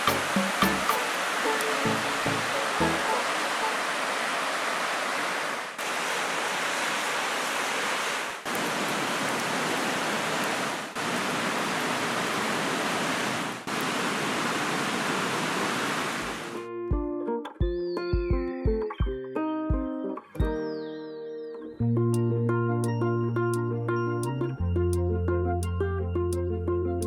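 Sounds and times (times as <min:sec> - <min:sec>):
flowing water rushing: 0:00.0 - 0:16.6.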